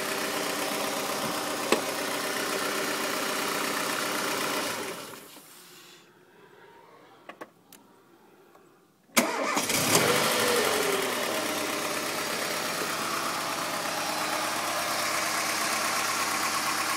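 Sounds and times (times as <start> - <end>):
car engine starting and idling: 0.0 - 5.4, 9.2 - 16.9.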